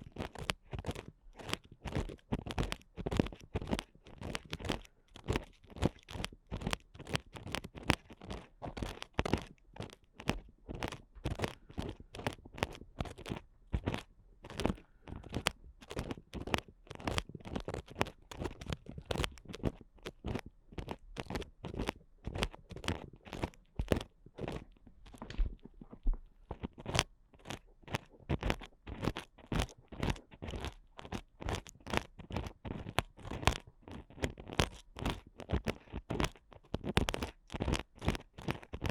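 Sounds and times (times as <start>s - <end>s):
ear picks scratching microphone: 0.0s - 38.9s.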